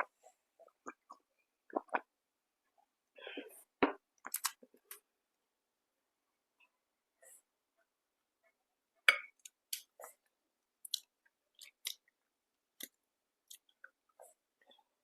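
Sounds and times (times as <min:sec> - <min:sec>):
mouth clicks and smacks: 0:00.8 - 0:02.1, 0:10.8 - 0:12.1
person chewing food: 0:10.8 - 0:12.2, 0:12.8 - 0:14.4.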